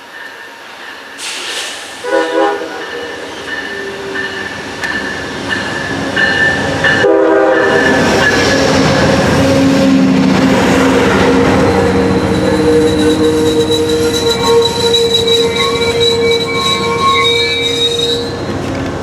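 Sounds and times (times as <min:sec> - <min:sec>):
train rumble: 0:00.0 - 0:19.0
locomotive chime horn: 0:02.0 - 0:05.1, 0:06.2 - 0:08.5, 0:09.8 - 0:18.6
steady high squeal: 0:07.7 - 0:18.6.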